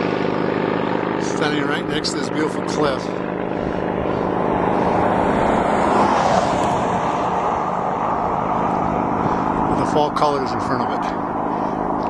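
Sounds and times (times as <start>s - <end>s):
bicycle road noise: 0.0s - 12.0s
wind noise on microphone: 3.6s - 10.3s.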